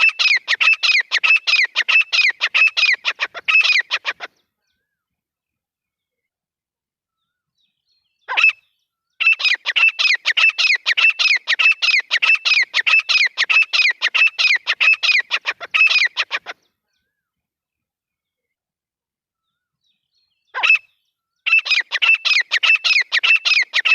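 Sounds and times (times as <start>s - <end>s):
francolin calling: 0.0s - 4.3s, 8.2s - 16.6s, 20.5s - 23.9s.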